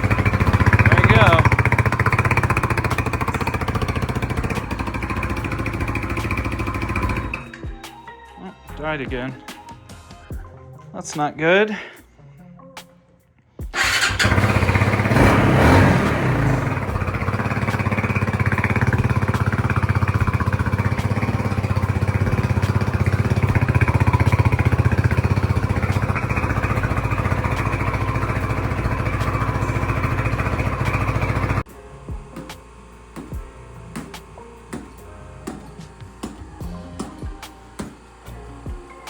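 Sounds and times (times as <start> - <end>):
motorcycle engine idling: 0.0 - 7.8, 13.8 - 39.0.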